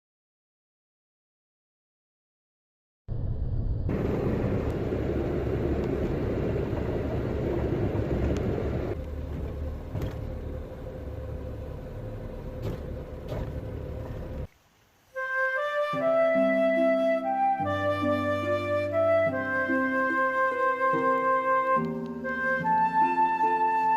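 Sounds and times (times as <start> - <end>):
vehicle engine rumbling: 3.1 - 14.5.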